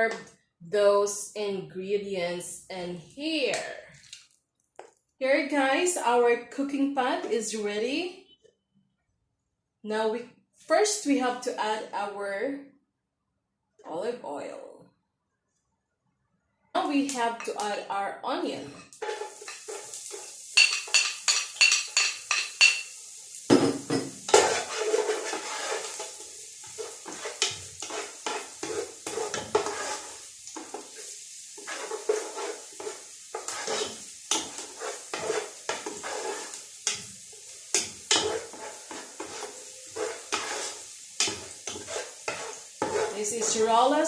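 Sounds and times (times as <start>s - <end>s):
onion sizzling in oil: 16.8s - 44.0s
spoon scraping and knocking pot: 18.7s - 31.0s, 31.6s - 37.1s, 37.7s - 43.7s.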